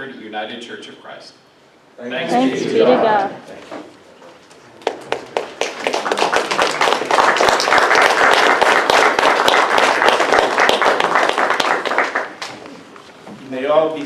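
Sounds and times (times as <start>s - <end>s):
congregation applauding: 4.8s - 12.7s.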